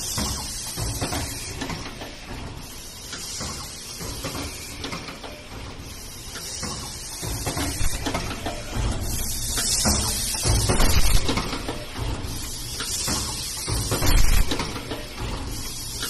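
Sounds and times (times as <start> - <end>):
machine clattering: 0.0 - 16.0
machine hiss: 0.0 - 16.0.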